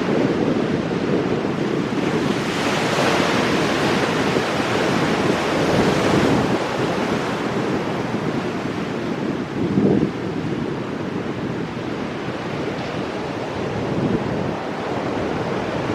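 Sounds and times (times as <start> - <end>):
wind buffeting microphone: 0.0 - 15.9
surf breaking on rocks: 2.0 - 8.3.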